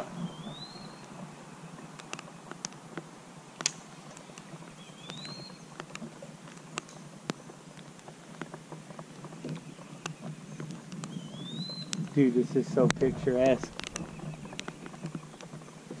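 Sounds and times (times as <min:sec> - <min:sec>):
light rain drops ticking: 0:00.0 - 0:16.0
bird rising whistle: 0:11.2 - 0:12.0.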